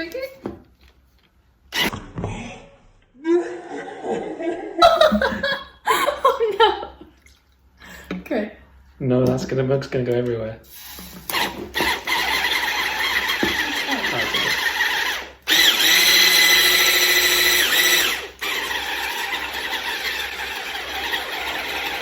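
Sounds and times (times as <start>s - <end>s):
electric mixer whining: 11.3s - 22.0s.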